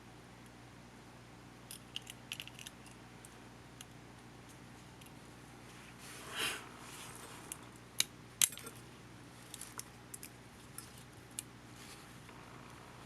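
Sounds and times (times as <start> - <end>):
small parts being handled: 1.7 - 3.9, 8.4 - 12.0.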